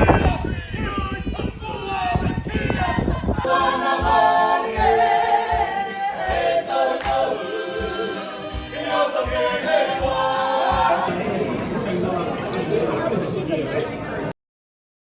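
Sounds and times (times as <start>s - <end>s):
choir singing in harmony: 1.6s - 11.7s.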